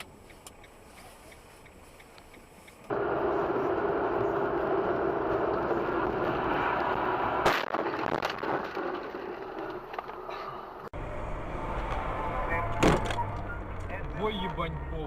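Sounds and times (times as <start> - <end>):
vehicle driving noise: 0.0 - 15.0
low engine hum: 0.1 - 7.4, 11.0 - 15.0
car collision bang: 12.7 - 13.4.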